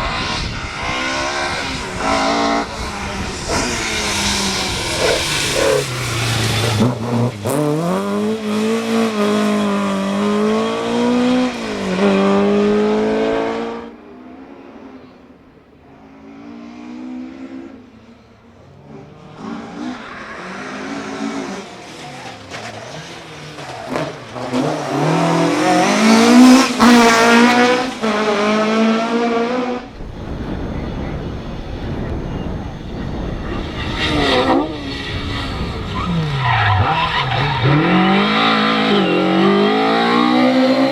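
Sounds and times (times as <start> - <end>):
steady rushing noise: 0.0 - 8.8, 29.5 - 36.9
rally car engines passing: 0.0 - 40.9.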